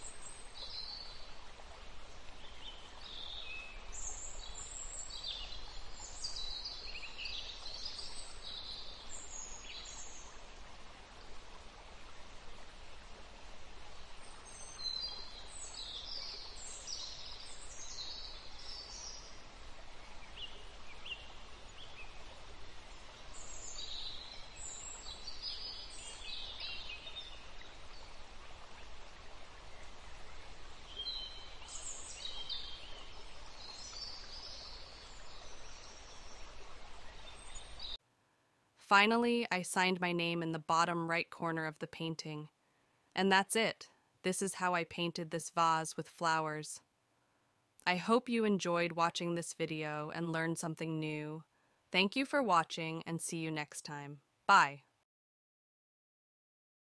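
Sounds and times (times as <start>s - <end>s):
small birds chirping: 0.0s - 1.3s, 22.9s - 28.2s, 29.8s - 38.0s
steady background hiss: 0.0s - 41.6s.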